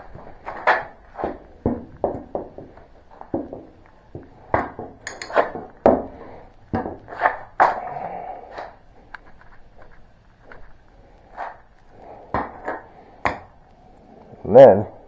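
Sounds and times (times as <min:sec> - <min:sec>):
tools knocking on metal blade: 0:05.1 - 0:05.4.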